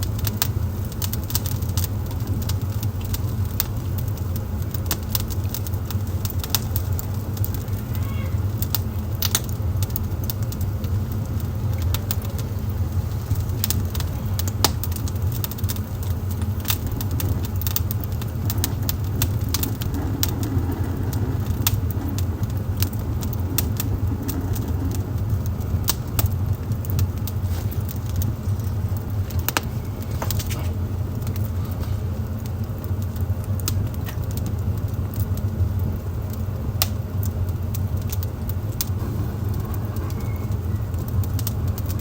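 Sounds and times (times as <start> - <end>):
fire low rumble: 0.0 - 42.0
wood fire crackling and popping: 0.0 - 42.0.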